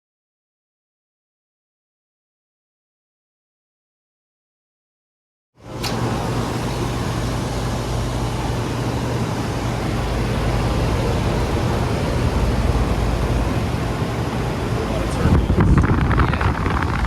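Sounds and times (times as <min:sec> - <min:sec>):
air conditioner fan whoosh: 0:05.6 - 0:17.0
low compressor hum: 0:05.6 - 0:17.0.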